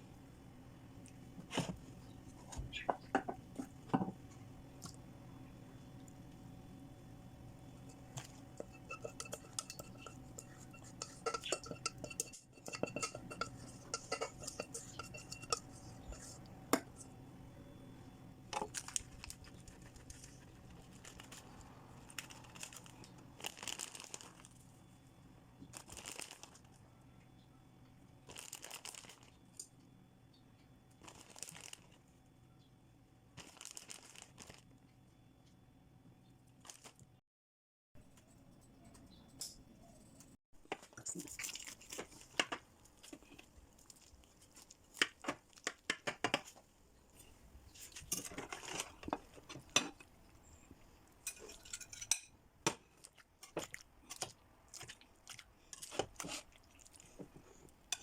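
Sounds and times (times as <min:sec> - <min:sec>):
packaging crinkling and tearing: 0:20.9 - 0:24.6, 0:25.7 - 0:26.7, 0:28.3 - 0:29.3, 0:31.0 - 0:32.0, 0:33.4 - 0:34.7.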